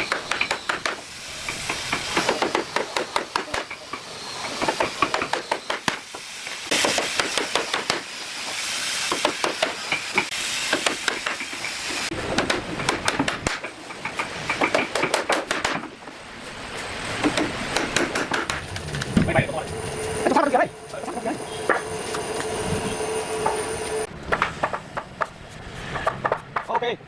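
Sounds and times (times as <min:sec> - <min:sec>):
hand tool tapping and scraping wood: 0:17.2 - 0:19.3
hissing noise: 0:18.4 - 0:24.1.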